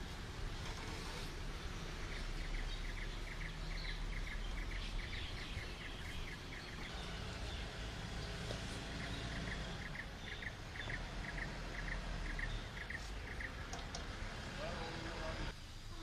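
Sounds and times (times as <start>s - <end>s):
small bird chirping: 1.6s - 14.1s.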